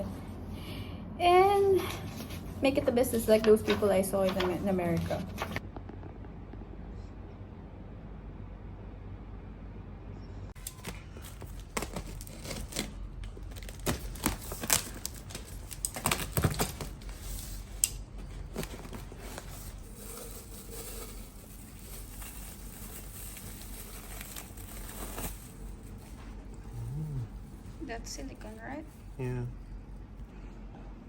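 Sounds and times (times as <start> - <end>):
packaging crinkling and rustling: 10.6 - 26.5.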